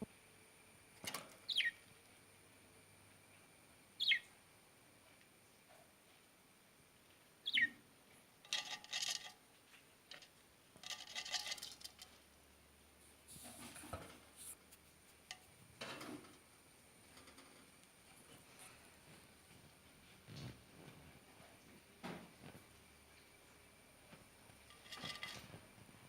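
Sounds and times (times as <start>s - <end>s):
lovebirds chirping and chattering: 1.5s - 1.8s, 4.0s - 4.3s, 7.4s - 7.8s
scratchy rustling: 13.0s - 15.6s.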